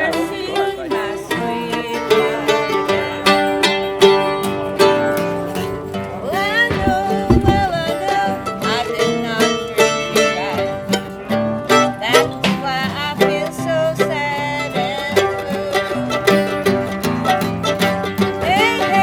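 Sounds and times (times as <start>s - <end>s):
country music on string instruments: 0.0s - 19.0s.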